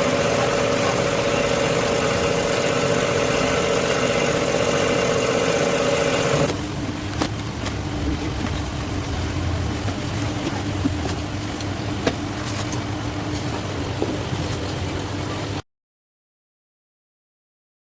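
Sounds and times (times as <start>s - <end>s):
truck engine idling: 0.0s - 6.8s
low steady hum: 0.0s - 15.6s.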